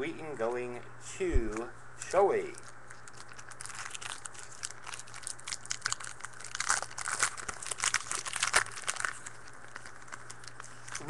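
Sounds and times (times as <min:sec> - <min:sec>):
faint electrical hum: 0:00.0 - 0:11.0
plastic wrappers crinkling and tearing: 0:02.5 - 0:11.0.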